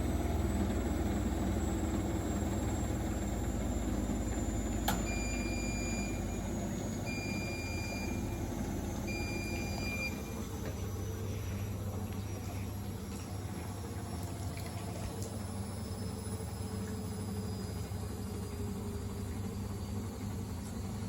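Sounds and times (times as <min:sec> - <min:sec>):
washing machine spinning: 0:00.0 - 0:21.0
click: 0:04.8 - 0:05.1
long high beeps: 0:07.1 - 0:10.4.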